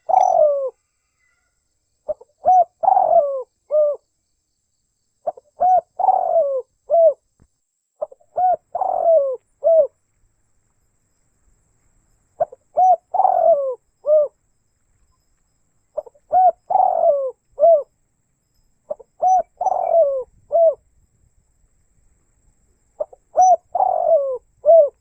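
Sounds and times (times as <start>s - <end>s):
dove cooing: 0.0s - 0.8s, 2.1s - 4.0s, 5.2s - 7.2s, 8.0s - 10.0s, 12.4s - 14.4s, 16.0s - 17.9s, 18.9s - 20.9s, 23.0s - 25.0s.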